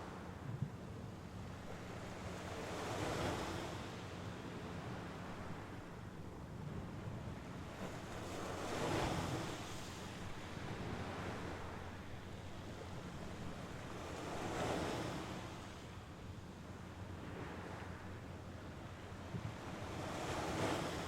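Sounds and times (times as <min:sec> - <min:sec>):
wind rumble on microphone: 0:00.0 - 0:21.0
waves breaking on shore: 0:01.1 - 0:21.0.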